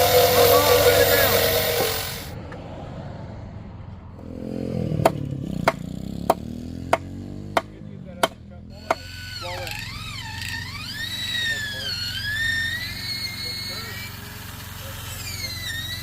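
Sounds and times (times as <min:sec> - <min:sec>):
engine running: 0:00.0 - 0:02.6, 0:04.1 - 0:16.0
hammer strikes: 0:05.0 - 0:09.1.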